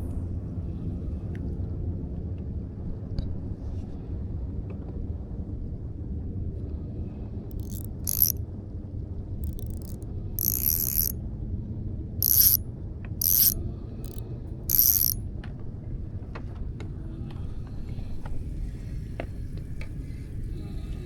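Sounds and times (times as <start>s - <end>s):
short ratcheting bursts: 7.5s - 8.3s, 9.4s - 11.1s, 12.2s - 12.6s, 13.2s - 15.2s.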